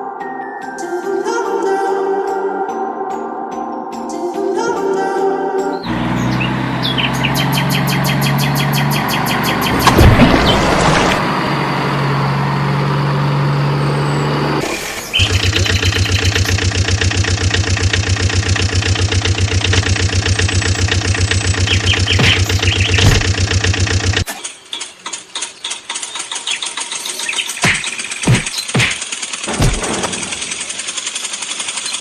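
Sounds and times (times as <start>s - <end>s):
vehicle engine running: 5.9s - 24.3s, 25.2s - 32.0s.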